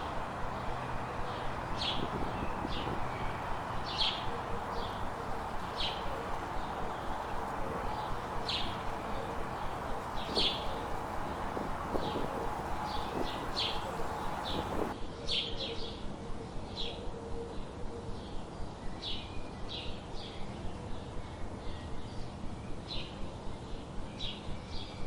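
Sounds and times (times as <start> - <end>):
background hiss: 0.0 - 15.0
songbirds chirping: 0.0 - 15.0.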